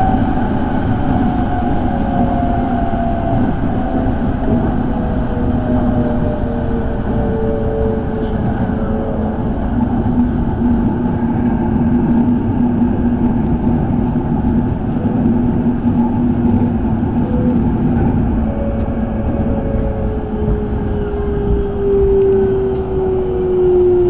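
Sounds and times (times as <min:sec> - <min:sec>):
falling whine: 0:00.0 - 0:24.0
train wheels rumbling on rail: 0:00.0 - 0:24.0.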